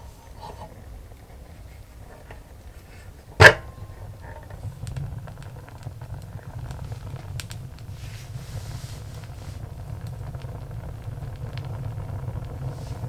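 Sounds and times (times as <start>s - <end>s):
firewood crackling: 0.0s - 13.0s
sharp pop from burning wood: 3.3s - 13.0s.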